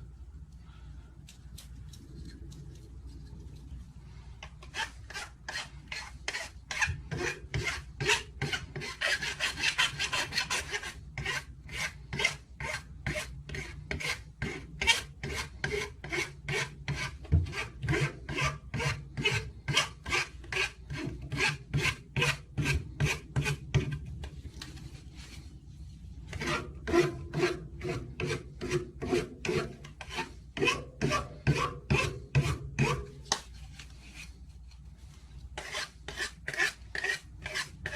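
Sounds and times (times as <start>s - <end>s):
hand tool rasping: 4.5s - 24.0s, 26.3s - 33.1s, 35.6s - 37.9s.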